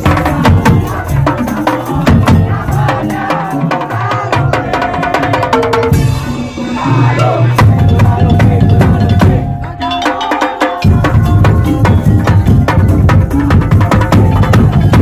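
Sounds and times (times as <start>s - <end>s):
wooden slit drums and drums: 0.0s - 15.0s
melodic line: 7.7s - 12.7s.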